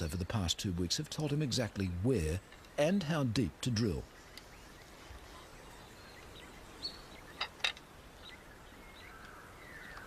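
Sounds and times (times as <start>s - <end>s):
steady outdoor hiss: 0.0s - 10.0s
bird chirps: 3.7s - 10.0s.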